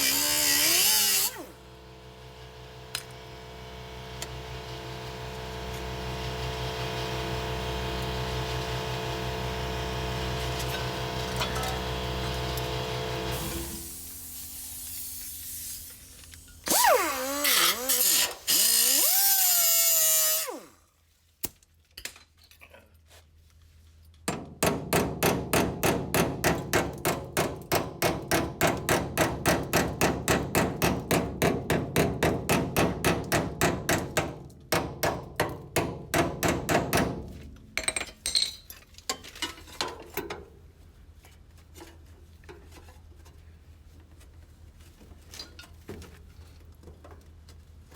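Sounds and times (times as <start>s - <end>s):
power tool pulsing: 0.0s - 1.8s, 16.6s - 20.7s.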